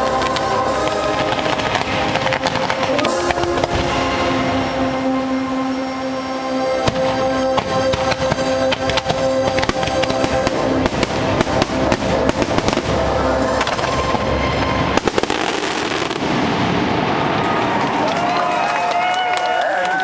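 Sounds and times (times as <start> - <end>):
music: 0.0 - 17.7
fireworks bursting and crackling: 0.0 - 19.3.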